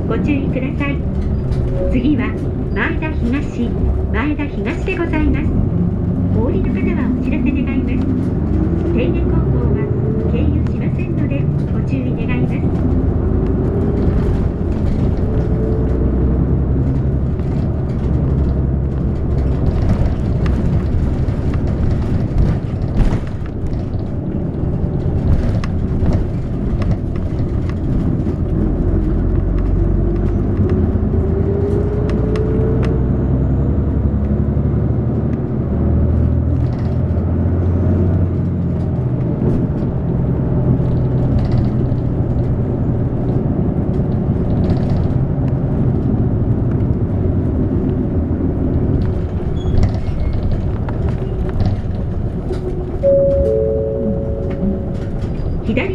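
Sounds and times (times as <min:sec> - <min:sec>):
bus engine and road rumble: 0:00.0 - 0:55.9
rising engine whine: 0:53.0 - 0:55.9.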